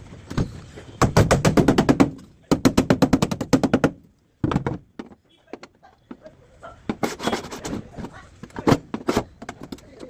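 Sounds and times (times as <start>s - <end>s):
rapid sharp knocks: 1.0s - 5.1s.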